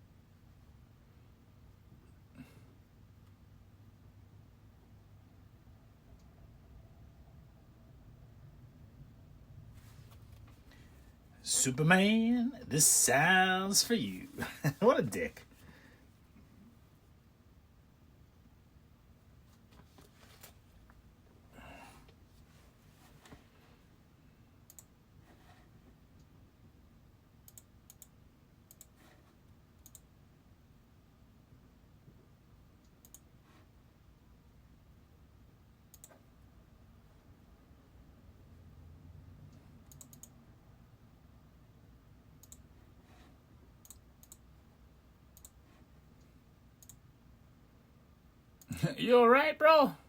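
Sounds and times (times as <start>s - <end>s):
low room hum: 0.0s - 50.0s
faint sharp clicks: 24.7s - 24.9s, 29.8s - 30.1s, 32.8s - 33.2s, 35.9s - 36.2s, 39.9s - 40.3s, 42.4s - 42.6s, 43.8s - 44.4s, 45.4s - 45.6s, 46.8s - 47.0s.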